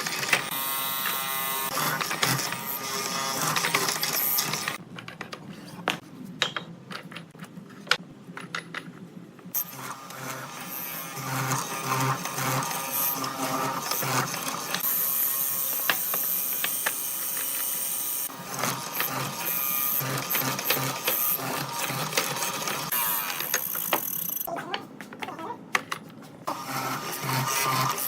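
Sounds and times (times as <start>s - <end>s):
power tool whining: 0.0s - 4.8s, 9.6s - 24.5s.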